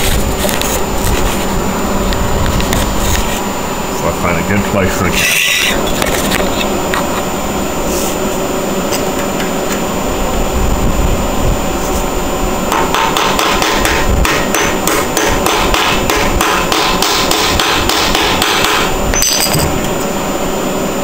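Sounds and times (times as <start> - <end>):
hammer striking metal: 12.7 - 19.7.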